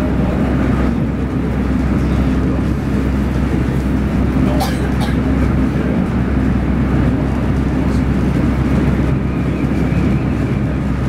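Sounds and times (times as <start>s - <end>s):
train interior low rumble: 0.0s - 11.0s.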